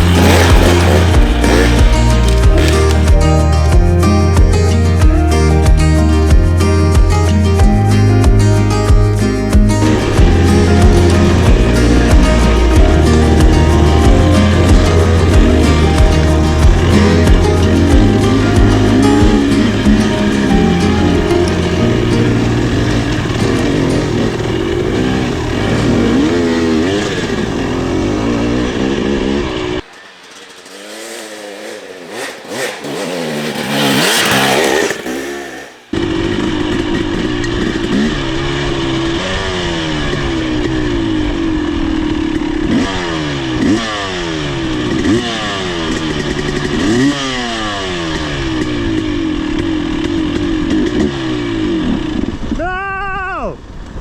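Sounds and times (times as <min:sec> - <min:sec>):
dirt bike engine revving: 0:00.0 - 0:08.0, 0:09.0 - 0:52.6.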